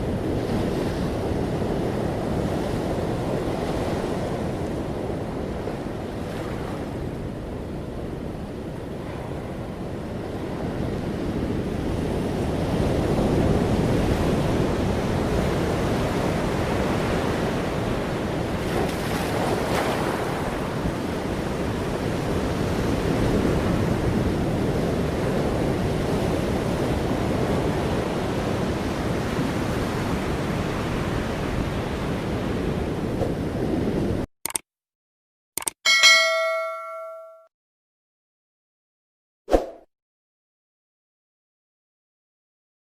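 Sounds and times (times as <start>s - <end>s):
wind: 0.0s - 34.6s, 35.6s - 37.4s
ocean surf rushing: 19.2s - 26.0s.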